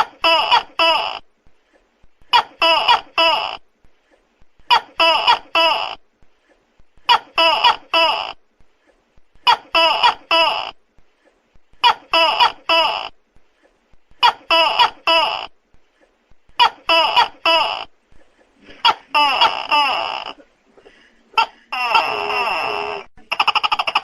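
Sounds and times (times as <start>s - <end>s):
gecko calling: 21.4s - 24.0s.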